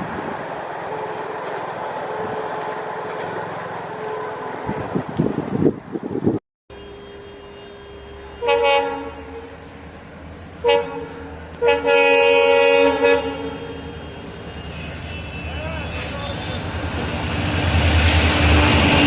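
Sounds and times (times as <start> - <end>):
train rumble: 0.0 - 19.0
locomotive air horn blasts: 6.7 - 9.8, 10.6 - 16.6.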